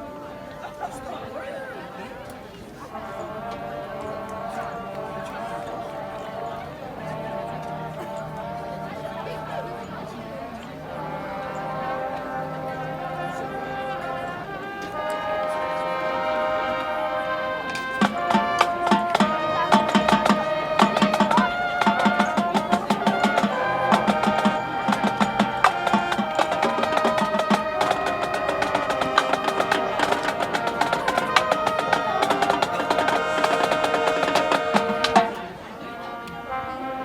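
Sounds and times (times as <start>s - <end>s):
horns holding chords: 0.0s - 37.0s
crisp drum strokes: 17.7s - 35.4s.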